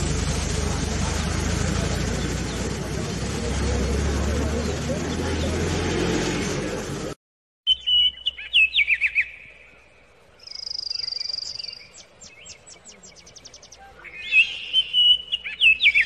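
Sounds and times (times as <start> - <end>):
birds singing whistled notes: 7.7 - 16.0.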